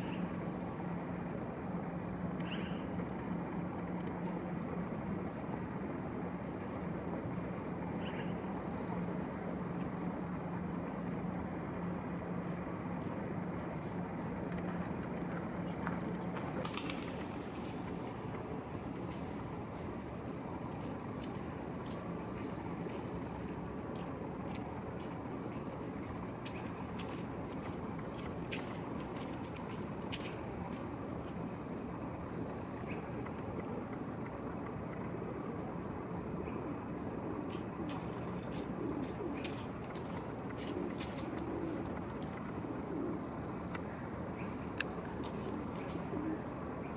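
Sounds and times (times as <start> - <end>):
low steady hum: 0.0 - 46.9
small birds chirping: 12.5 - 46.9.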